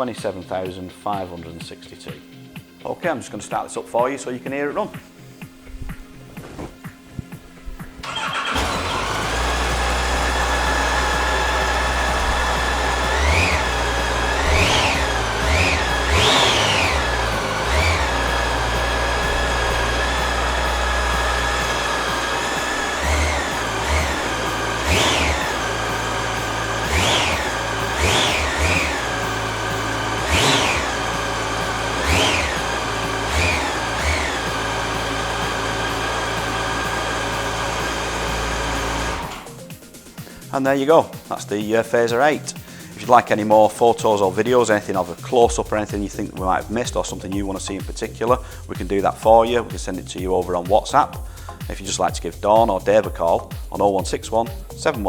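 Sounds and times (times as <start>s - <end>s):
motorcycle engine revving: 7.8s - 39.6s
motorcycle engine idling: 8.0s - 40.5s.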